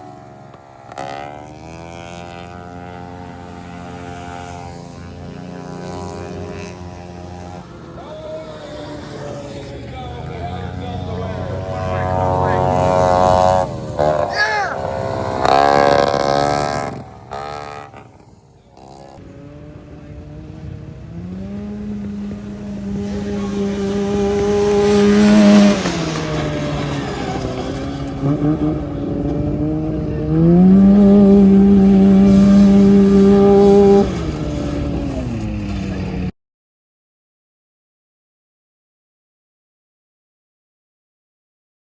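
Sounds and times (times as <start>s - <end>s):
lawnmower engine revving: 10.2s - 18.1s, 21.2s - 36.3s.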